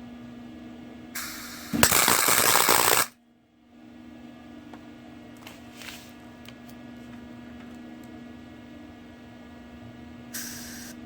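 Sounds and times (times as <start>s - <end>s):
steady hum: 0.0s - 11.0s
arc welder crackling: 1.2s - 3.1s.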